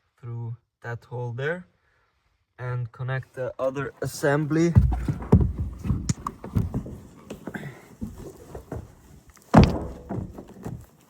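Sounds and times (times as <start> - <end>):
car parts knocking and clattering: 4.7 - 11.0.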